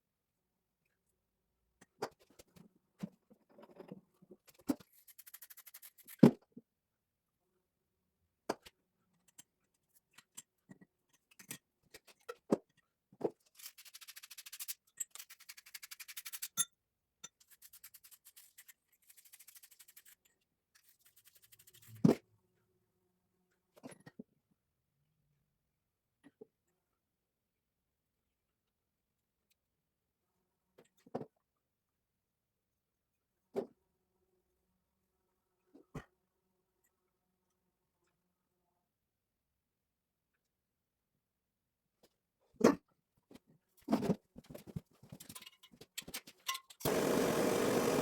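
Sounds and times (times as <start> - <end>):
rapid rasping scraping: 46.8 - 48.0.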